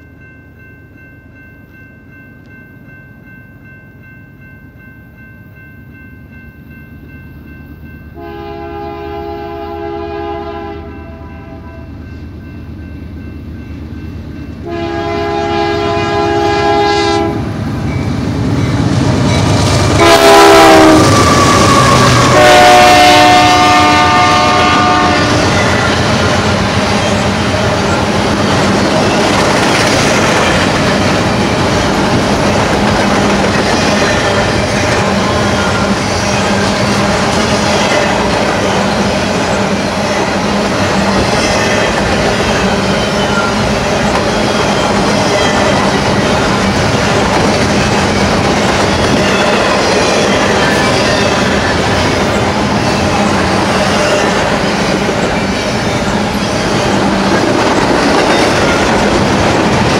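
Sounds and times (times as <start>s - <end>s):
freight train rumble: 3.2s - 59.9s
locomotive air horn blasts: 8.2s - 11.9s, 14.6s - 17.5s, 20.0s - 25.6s.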